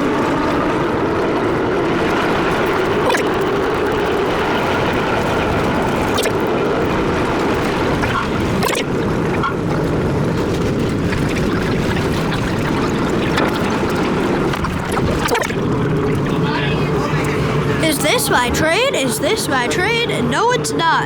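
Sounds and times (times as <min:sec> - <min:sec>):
wheels rumbling on rails: 0:00.0 - 0:14.9.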